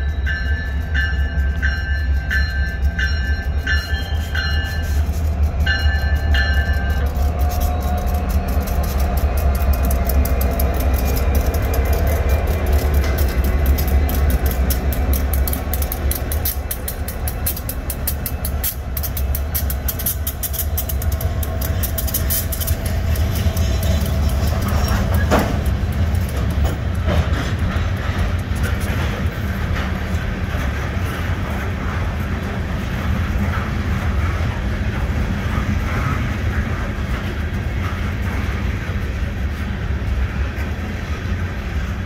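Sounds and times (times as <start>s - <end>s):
railroad crossing bell dinging: 0.0s - 26.6s
diesel locomotive engine rumble: 0.0s - 42.0s
train wheels clicking on rail joints: 0.0s - 42.0s.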